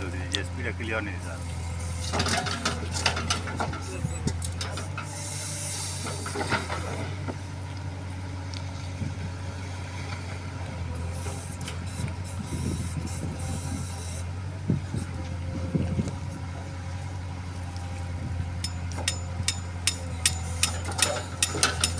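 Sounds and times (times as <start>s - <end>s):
heavy diesel engine running: 0.0s - 21.9s
metallic knocks and clanks: 2.1s - 5.1s, 18.6s - 21.9s
short hiss: 5.2s - 6.3s.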